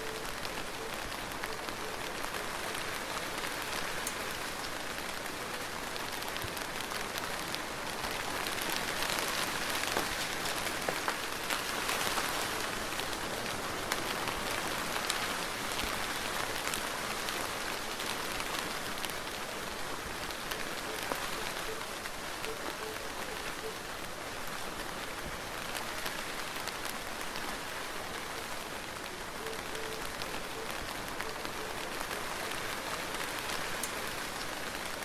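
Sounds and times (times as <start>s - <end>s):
soft rain falling: 0.0s - 35.0s.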